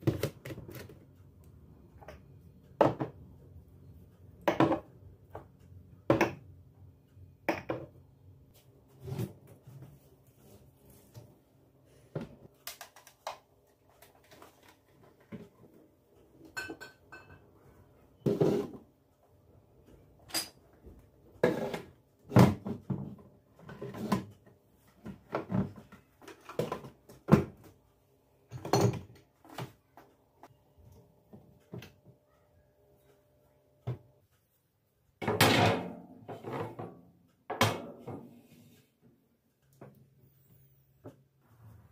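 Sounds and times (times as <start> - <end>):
dishes knocking and clunking: 2.8 - 3.2, 4.4 - 6.5, 7.4 - 8.0, 16.5 - 17.4, 28.5 - 29.2.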